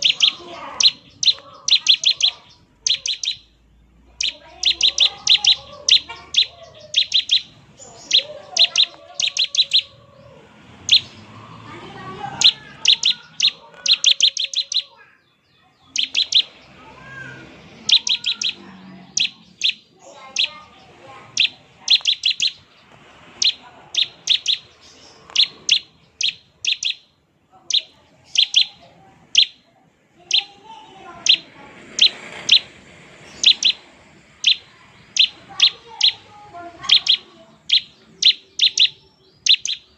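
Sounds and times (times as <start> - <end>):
bird singing high sharp chips: 0.0 - 10.0, 10.8 - 39.9.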